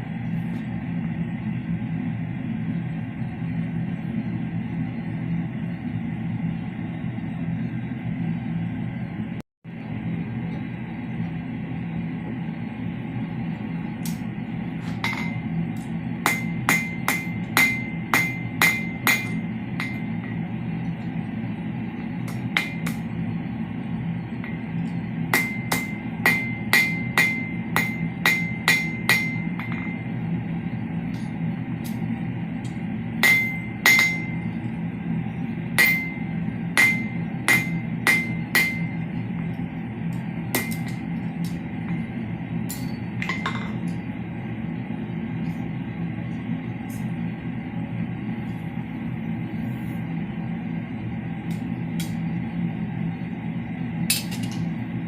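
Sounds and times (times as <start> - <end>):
low hum: 0.0 - 55.0
hammer striking steel on anvil: 14.9 - 20.5, 22.2 - 23.2, 24.3 - 30.2, 31.1 - 34.6, 35.7 - 44.0, 51.5 - 52.2, 54.1 - 54.7.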